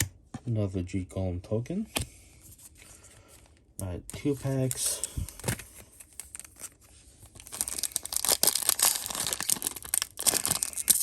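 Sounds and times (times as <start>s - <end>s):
foil wrapper crinkling and tearing: 6.0s - 11.0s.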